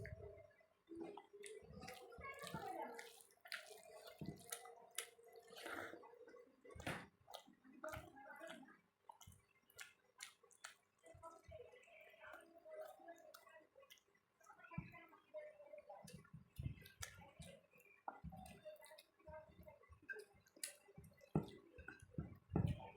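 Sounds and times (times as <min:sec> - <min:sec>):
wet chewing and lip smacks: 0:01.0 - 0:11.0, 0:20.1 - 0:22.1.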